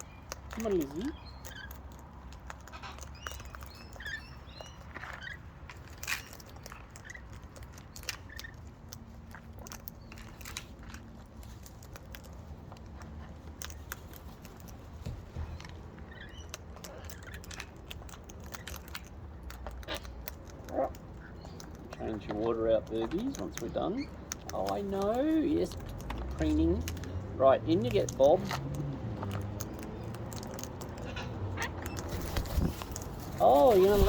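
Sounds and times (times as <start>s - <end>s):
faint bird chirps: 2.8s - 5.4s.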